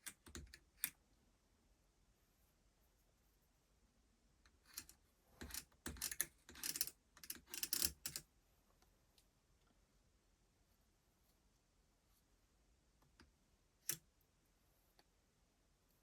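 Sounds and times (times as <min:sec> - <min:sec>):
small hard parts clicking: 0:04.7 - 0:08.2.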